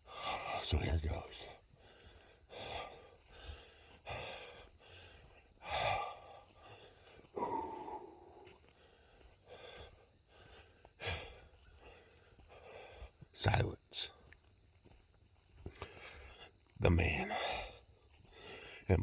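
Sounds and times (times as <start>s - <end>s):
man breathing out: 1.8s - 13.1s
man sighing: 7.4s - 8.4s.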